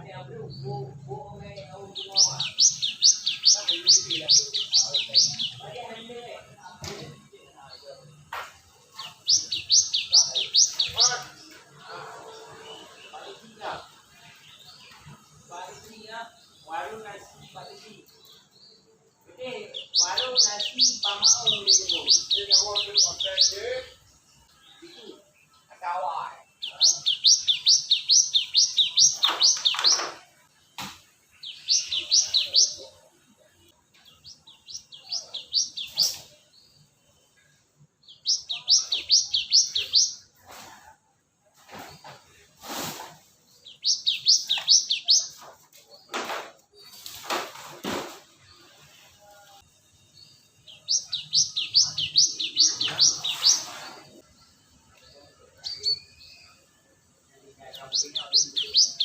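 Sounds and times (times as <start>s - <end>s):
bird singing high notes: 9.0s - 13.6s, 19.7s - 25.1s, 26.6s - 30.0s, 31.4s - 32.8s, 38.0s - 40.3s, 43.6s - 45.4s, 50.2s - 54.2s.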